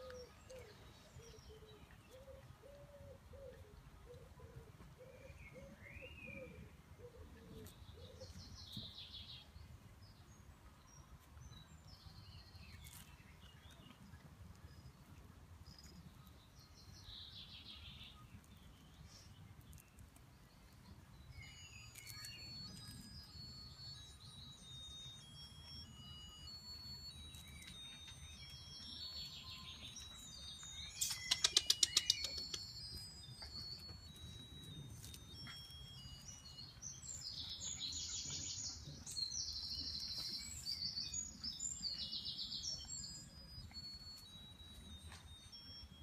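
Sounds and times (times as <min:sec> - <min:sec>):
birds chirping: 0:00.0 - 0:46.0
high bird twittering: 0:29.1 - 0:33.7.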